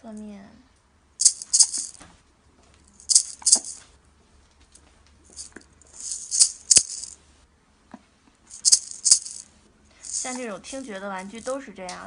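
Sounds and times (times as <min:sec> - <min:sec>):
toy maraca rattle shaken: 0:01.2 - 0:02.0, 0:03.0 - 0:03.8, 0:05.3 - 0:07.2, 0:08.5 - 0:10.5.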